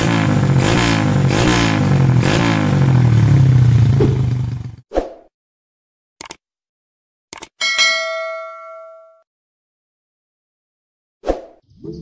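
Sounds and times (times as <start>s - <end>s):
motorcycle engine revving: 0.0s - 4.8s.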